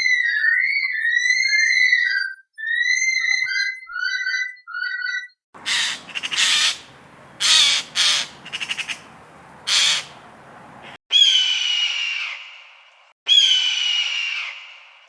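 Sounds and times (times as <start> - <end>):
bird harsh cawing calls: 5.6 - 11.0
whistled bird notes: 5.6 - 11.0.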